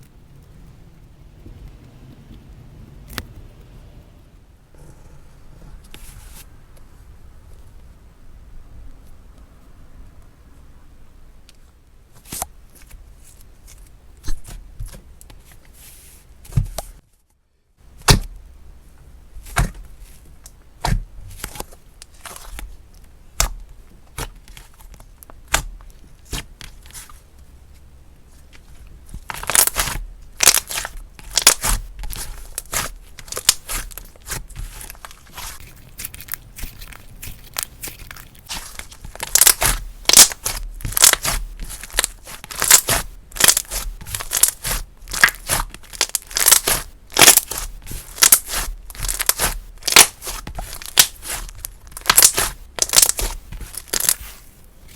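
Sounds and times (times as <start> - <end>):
slime crackling: 28.5 - 54.6
slime clicking and popping: 29.3 - 54.2.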